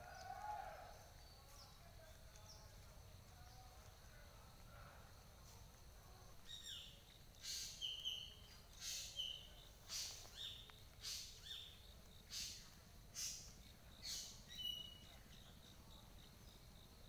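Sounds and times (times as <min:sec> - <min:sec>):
bird calling with whistle and rasp: 0:06.5 - 0:11.7, 0:13.2 - 0:15.1.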